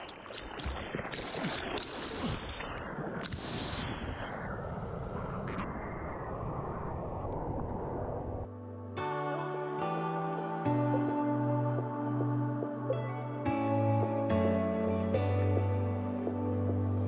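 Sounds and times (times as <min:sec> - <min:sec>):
surf at a shoreline: 0:00.0 - 0:17.0
wind: 0:00.0 - 0:17.0
music: 0:08.5 - 0:17.0.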